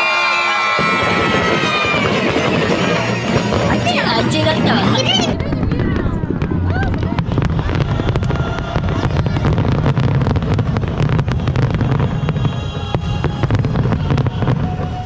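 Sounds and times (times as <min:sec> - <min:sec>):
fireworks bursting and crackling: 0:00.2 - 0:15.0
music playing: 0:01.5 - 0:05.4.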